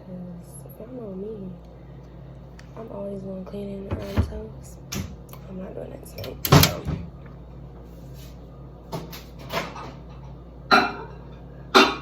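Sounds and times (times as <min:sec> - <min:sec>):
steady low hum: 0:00.0 - 0:09.3
kitchen knocks and clunks: 0:03.8 - 0:05.2, 0:06.2 - 0:07.1.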